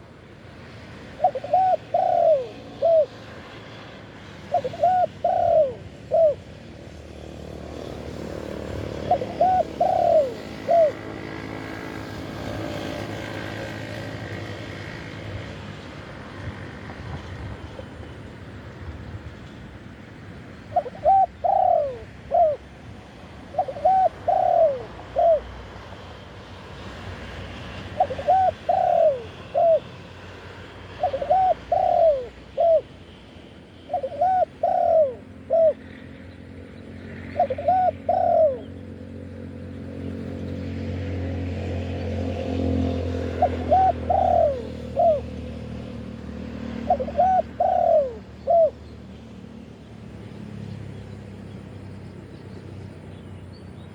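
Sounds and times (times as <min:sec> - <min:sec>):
dove cooing: 0:01.0 - 0:03.3, 0:04.4 - 0:06.5, 0:08.3 - 0:14.4, 0:20.6 - 0:26.0, 0:27.7 - 0:33.0, 0:33.8 - 0:36.1, 0:37.1 - 0:39.0, 0:42.9 - 0:45.8, 0:46.6 - 0:48.9.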